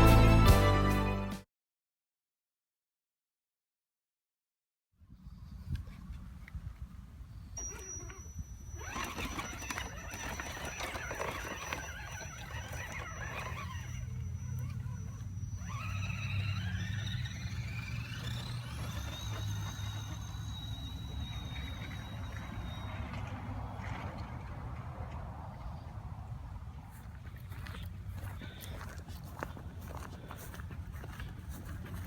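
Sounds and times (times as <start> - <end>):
electric motor whining: 7.6 - 24.3.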